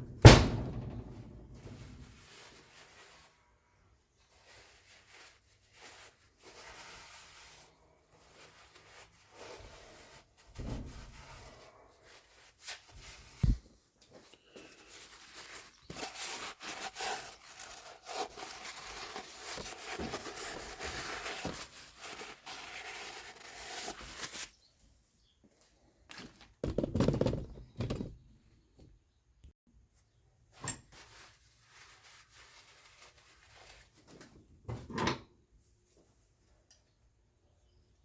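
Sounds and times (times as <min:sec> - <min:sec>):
rubbing and scraping on metal: 0:00.6 - 0:13.6, 0:14.5 - 0:24.5.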